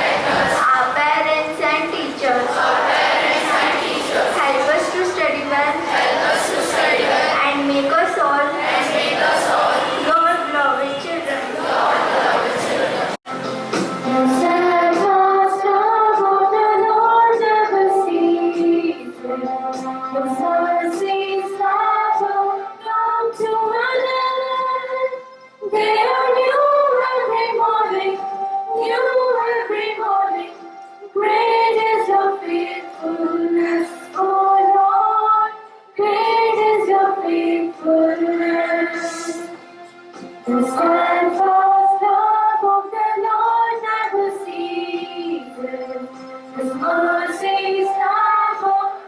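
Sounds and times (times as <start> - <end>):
young voices singing a hymn: 0.0 - 13.2, 14.1 - 49.0.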